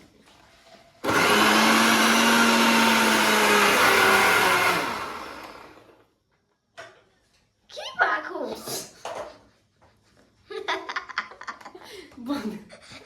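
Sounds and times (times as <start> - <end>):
electric blender running: 1.0 - 6.1.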